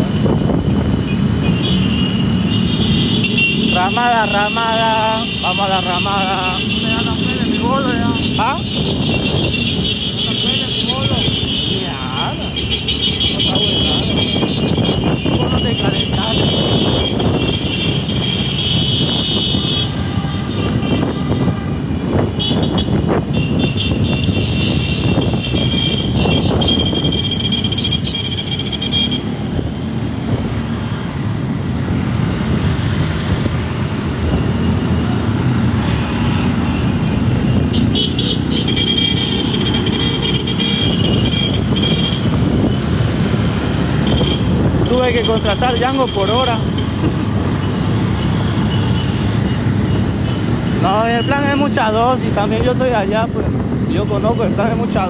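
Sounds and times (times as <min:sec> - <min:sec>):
traffic engine and road rumble: 0:00.0 - 0:55.0.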